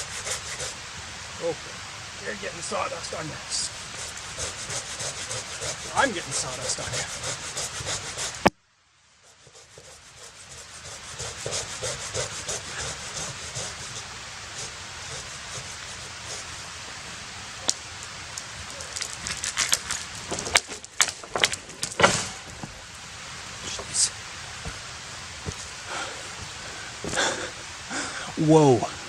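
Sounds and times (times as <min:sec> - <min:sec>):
saw rasping through wood: 0:00.0 - 0:00.8, 0:03.6 - 0:08.5, 0:09.2 - 0:16.6.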